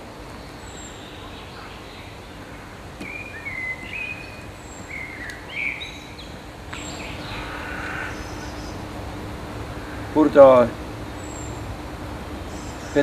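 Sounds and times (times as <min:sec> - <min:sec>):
faint steady hum: 0:00.0 - 0:13.0
outdoor background noise: 0:00.0 - 0:13.0
songbirds chirping: 0:00.0 - 0:13.0.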